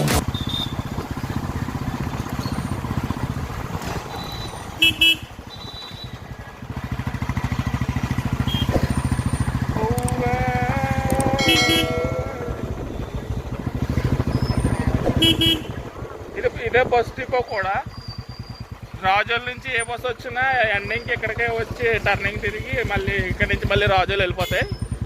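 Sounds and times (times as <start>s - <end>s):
motorcycle engine running: 0.0s - 25.0s
horn beeps: 4.2s - 6.2s, 8.4s - 9.3s, 11.3s - 13.4s, 15.1s - 15.8s, 24.4s - 24.9s.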